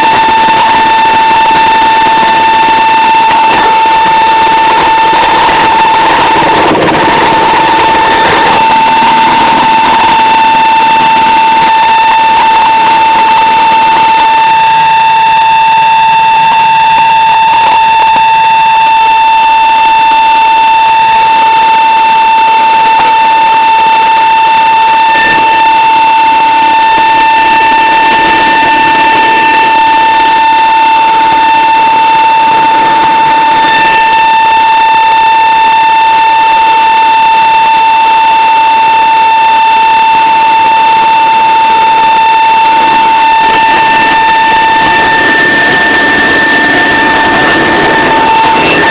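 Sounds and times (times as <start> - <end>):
aircraft engine and propeller: 0.0 - 38.8, 39.4 - 48.9
stall warning horn tone: 42.6 - 48.9.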